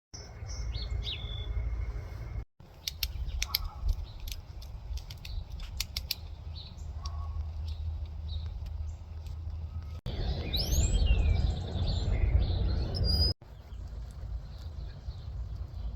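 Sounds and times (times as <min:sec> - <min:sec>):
sharp irregular ticks: 0:02.6 - 0:09.5
steady low rumble: 0:03.1 - 0:15.9
high bird chirps: 0:09.7 - 0:13.4.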